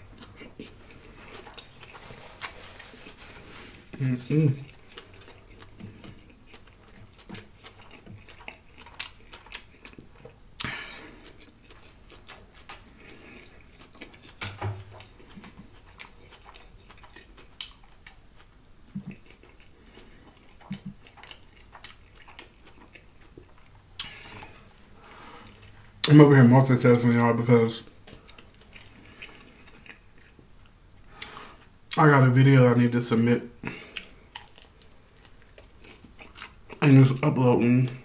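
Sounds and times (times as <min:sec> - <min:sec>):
crisp crackles of food: 0:00.2 - 0:10.3, 0:34.0 - 0:38.0
wet mouth chewing: 0:04.6 - 0:24.7, 0:33.9 - 0:36.8.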